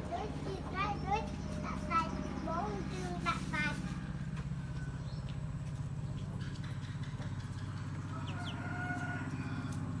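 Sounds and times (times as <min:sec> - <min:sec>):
low motor-like hum: 0:00.0 - 0:10.0
chickens calling: 0:06.2 - 0:10.0.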